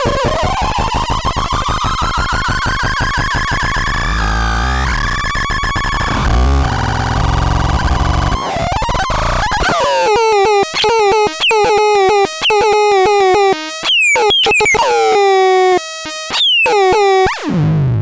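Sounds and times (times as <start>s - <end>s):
synthesizer buzzing drone: 2.1s - 14.2s.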